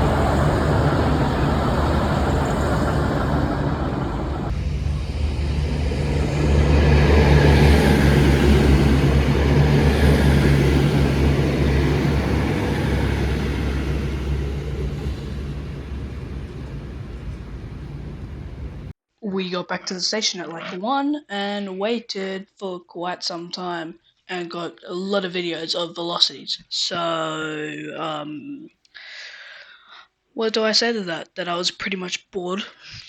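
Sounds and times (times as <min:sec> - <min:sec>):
diesel train passing: 0:00.0 - 0:18.9.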